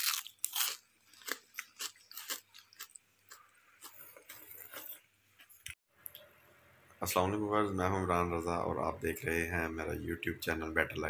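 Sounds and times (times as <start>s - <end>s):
person crunching crispy food: 0.0s - 5.0s.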